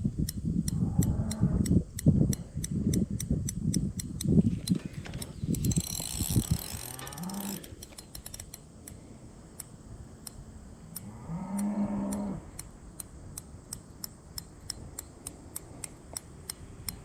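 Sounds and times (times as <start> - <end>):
fishing reel clicking: 0.3 - 9.0.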